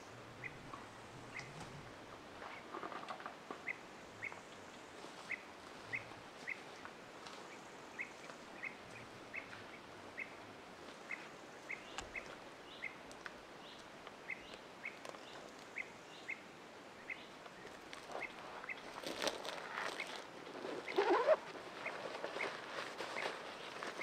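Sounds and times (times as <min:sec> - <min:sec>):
woods background hiss: 0:00.0 - 0:24.0
bird chirping: 0:11.1 - 0:13.0, 0:17.0 - 0:18.9, 0:19.7 - 0:22.6
rustling: 0:17.6 - 0:24.0.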